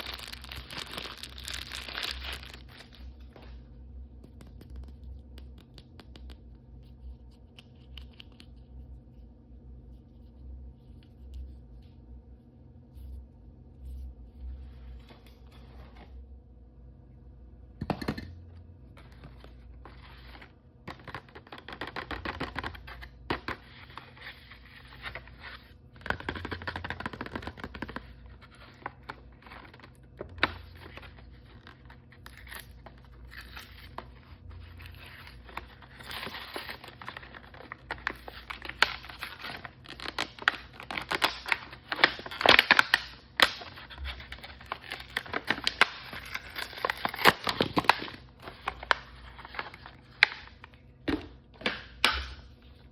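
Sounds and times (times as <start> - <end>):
plastic wrapping tearing and crinkling: 0.0 - 3.3, 20.9 - 50.7.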